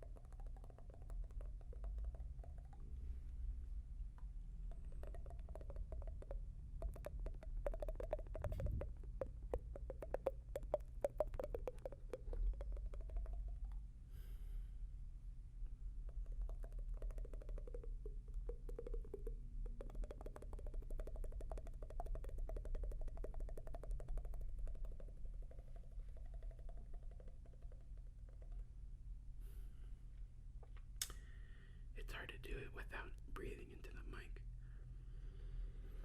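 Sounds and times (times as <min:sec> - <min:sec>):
wet tongue and lip clicks: 0:00.0 - 0:14.4, 0:16.0 - 0:28.8, 0:30.6 - 0:31.4
low background hum: 0:00.0 - 0:36.0.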